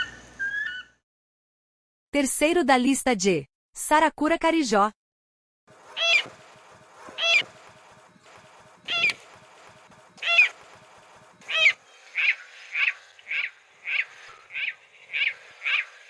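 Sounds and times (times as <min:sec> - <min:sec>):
rail bird shrill calls: 0:00.0 - 0:00.9, 0:06.0 - 0:06.3, 0:07.2 - 0:07.4, 0:10.2 - 0:10.5, 0:11.5 - 0:15.9.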